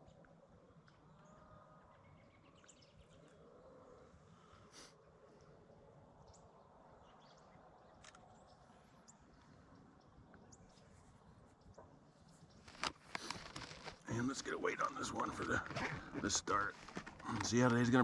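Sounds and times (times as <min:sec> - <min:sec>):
soft clicks: 0:07.9 - 0:08.7.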